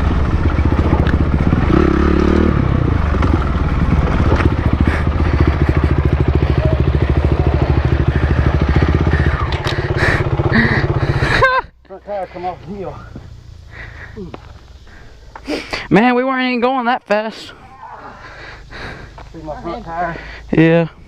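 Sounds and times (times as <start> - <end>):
dirt bike engine running: 0.0 - 15.4.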